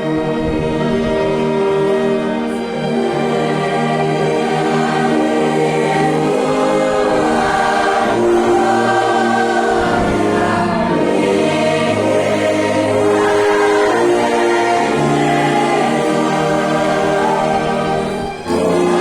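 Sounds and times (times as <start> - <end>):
congregation singing a hymn: 0.0 - 19.0
orchestra playing: 0.0 - 19.0.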